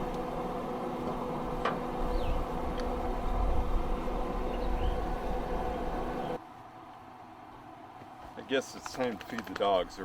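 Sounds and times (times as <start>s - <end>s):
engine running: 0.0s - 6.4s
bird chirps: 2.0s - 2.5s, 4.4s - 5.2s.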